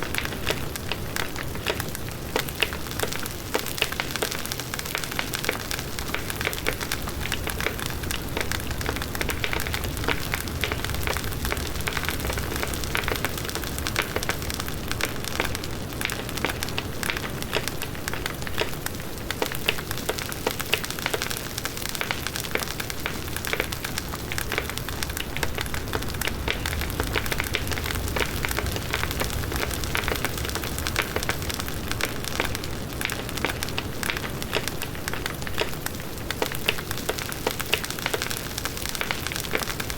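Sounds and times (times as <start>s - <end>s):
crackling of burning wood: 0.0s - 39.9s
low rush of flames: 5.7s - 19.4s, 22.5s - 37.1s.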